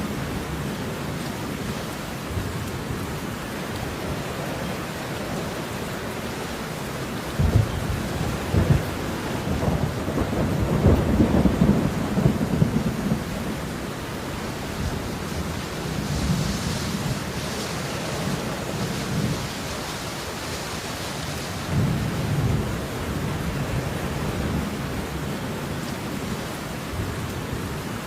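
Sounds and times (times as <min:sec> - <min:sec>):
steady rain: 0:00.0 - 0:28.0
rolling thunder rumble: 0:07.3 - 0:13.9, 0:21.6 - 0:25.4.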